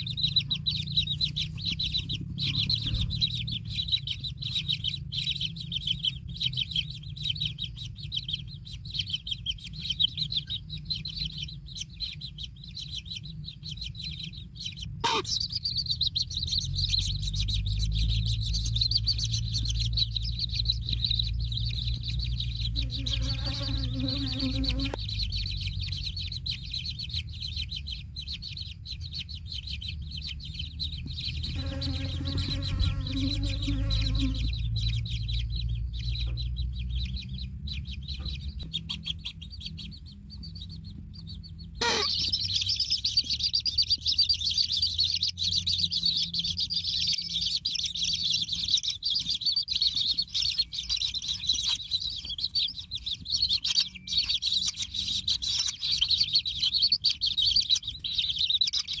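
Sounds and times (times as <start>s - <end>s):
low rumble: 0.0s - 8.1s, 10.8s - 23.1s, 25.0s - 41.8s
lower-pitched bird call: 0.0s - 40.6s, 41.2s - 59.0s
chicks chirping: 0.0s - 59.0s.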